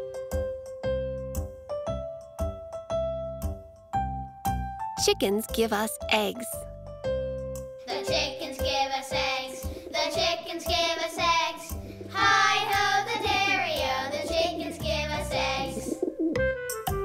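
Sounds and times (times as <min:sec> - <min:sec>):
high voices singing with vibrato: 0:07.9 - 0:16.0
instrumental backing: 0:09.7 - 0:17.0.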